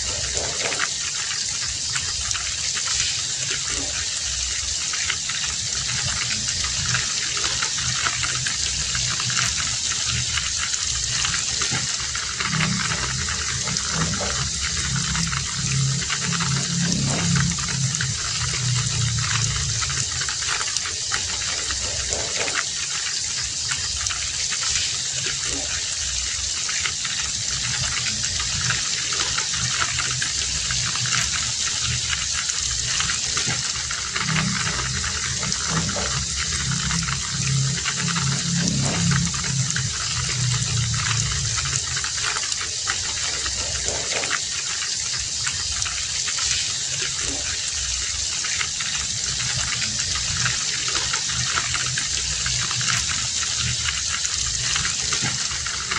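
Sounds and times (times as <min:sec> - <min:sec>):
heavy rain falling: 0:00.0 - 0:55.9
low rumble: 0:05.9 - 0:22.2, 0:29.4 - 0:42.4.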